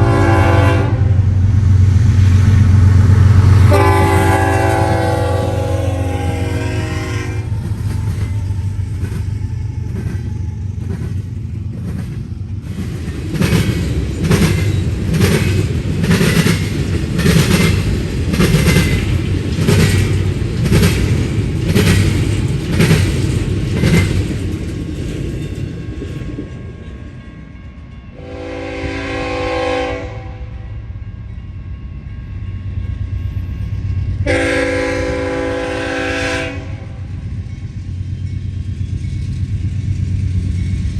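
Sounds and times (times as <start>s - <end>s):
locomotive air horn blasts: 0.0s - 1.2s, 3.6s - 7.6s, 28.2s - 30.7s, 34.2s - 37.1s
diesel locomotive rumble: 0.0s - 40.9s
train wheels clacking on rails: 1.5s - 30.0s, 32.4s - 40.9s.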